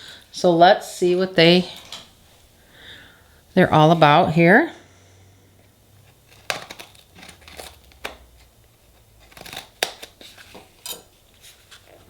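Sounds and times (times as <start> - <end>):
packaging scrapes and clicks: 6.0 - 12.0.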